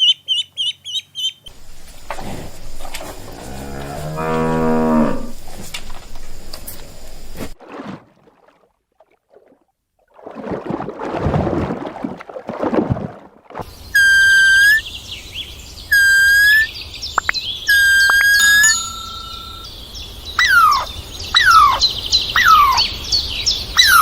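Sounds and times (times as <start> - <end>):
rough noisy animal sound: 1.5 - 7.6
long whistled calls: 13.8 - 24.0.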